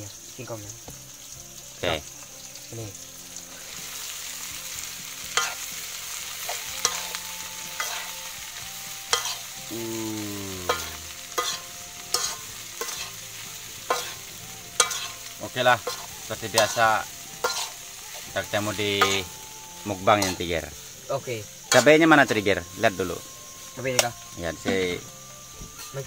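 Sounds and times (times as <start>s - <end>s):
leaves sizzling in a pan: 0.0s - 26.0s
utensil scraping a pan: 9.1s - 9.5s, 10.7s - 19.3s.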